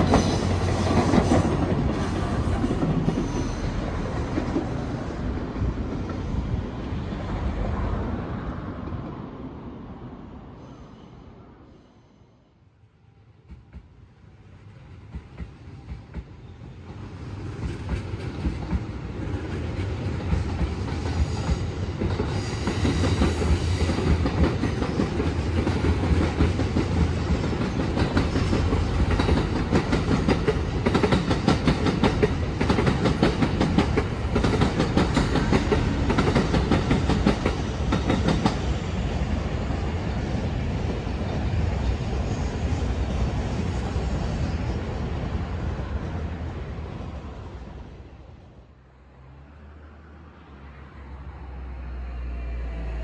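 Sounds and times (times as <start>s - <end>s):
train wheels clattering over rail joints: 19.8s - 38.6s.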